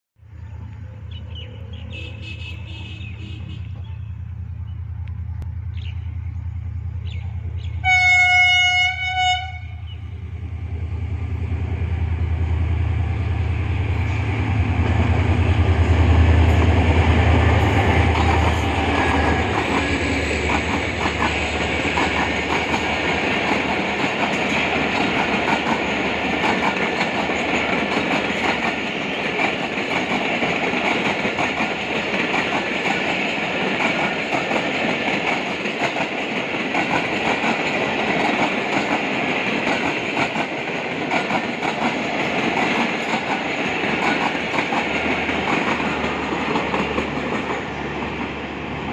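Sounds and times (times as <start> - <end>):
locomotive engine rumble: 0.2 - 29.4
locomotive horn blast: 1.6 - 3.9, 7.8 - 10.0.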